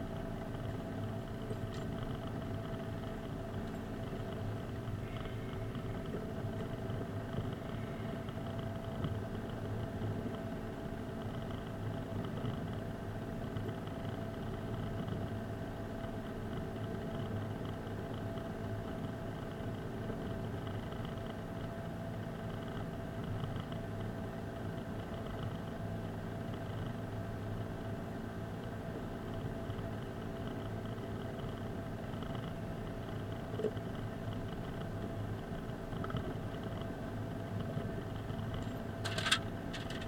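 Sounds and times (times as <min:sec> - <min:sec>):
car engine hum: 0:00.0 - 0:40.0
road noise: 0:37.8 - 0:40.0.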